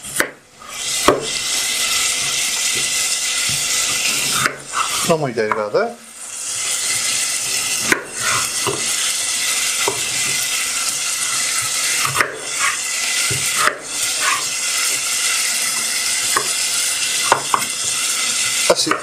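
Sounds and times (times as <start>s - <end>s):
knife chopping on cutting board: 0.0s - 0.4s, 1.0s - 1.4s, 4.4s - 4.6s, 7.8s - 8.9s, 12.0s - 14.4s, 16.3s - 16.6s, 17.2s - 17.7s
onions sizzling in oil: 0.0s - 19.0s.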